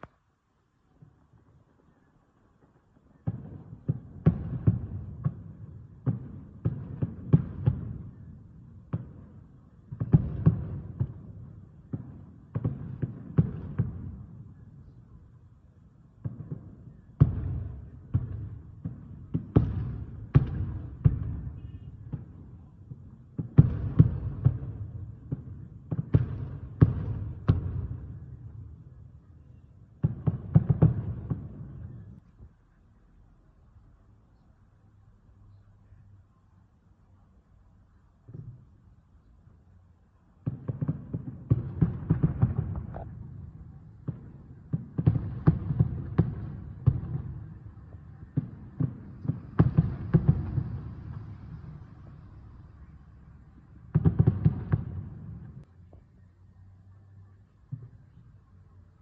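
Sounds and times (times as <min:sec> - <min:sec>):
distant fireworks booming: 0:00.9 - 0:32.6, 0:38.0 - 0:56.2, 0:57.5 - 0:58.6.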